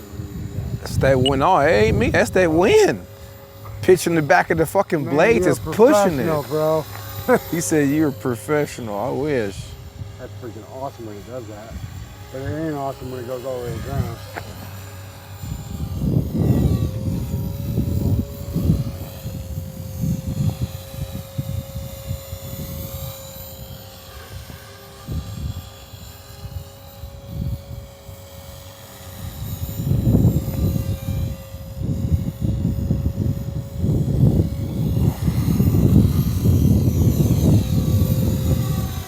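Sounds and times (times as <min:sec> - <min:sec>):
rc helicopter whining: 0:00.0 - 0:39.0
wind buffeting microphone: 0:00.0 - 0:39.0.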